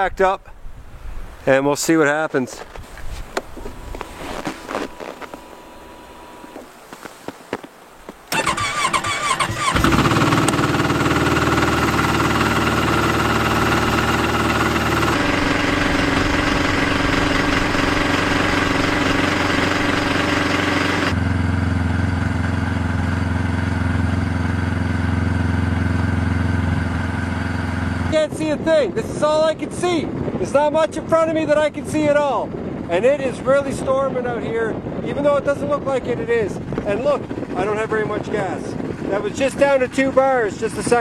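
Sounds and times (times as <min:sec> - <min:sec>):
snowmobile engine running: 0:03.6 - 0:07.0, 0:08.3 - 0:28.6, 0:35.2 - 0:41.0.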